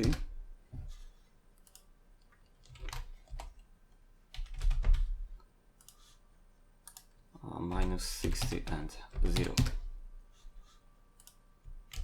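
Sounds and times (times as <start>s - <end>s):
keyboard keystrokes: 7.7s - 9.8s.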